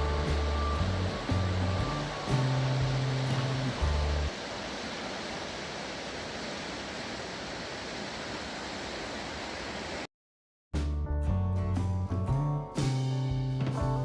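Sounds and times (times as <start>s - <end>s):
background music: 0.0s - 4.3s
rushing water: 0.0s - 10.1s.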